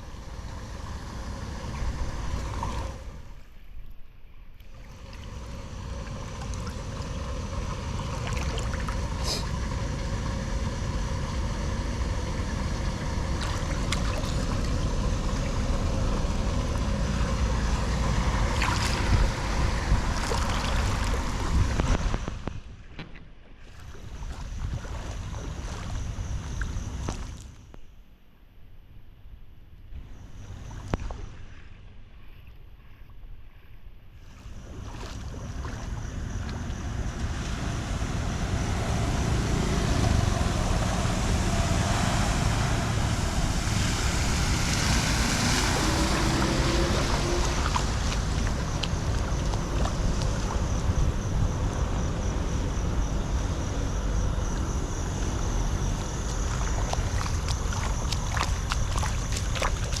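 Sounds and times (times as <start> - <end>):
water rushing into a drain: 4.6 - 9.6, 12.3 - 22.3, 34.3 - 51.0, 56.1 - 60.0.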